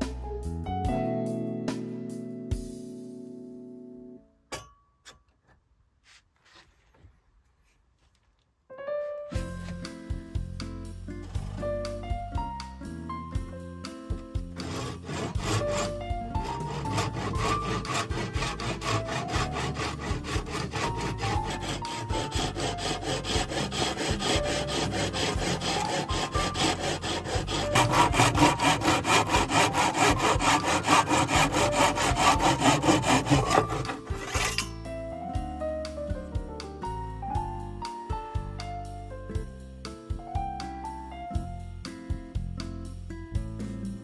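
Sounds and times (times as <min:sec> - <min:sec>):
background music: 0:00.0 - 0:04.2, 0:09.3 - 0:44.0
hand saw cutting wood: 0:14.5 - 0:34.8.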